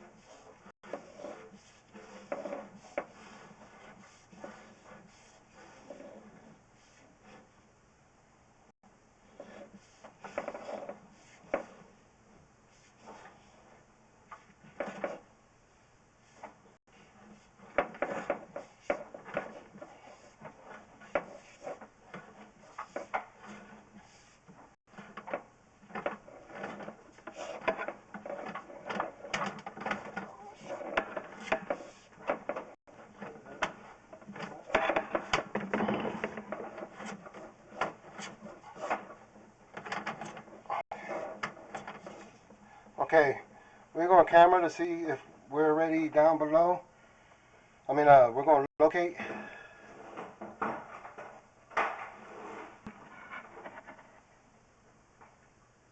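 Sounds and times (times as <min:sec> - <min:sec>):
push rod scraping in drain: 0:00.2 - 0:06.6, 0:17.0 - 0:42.9.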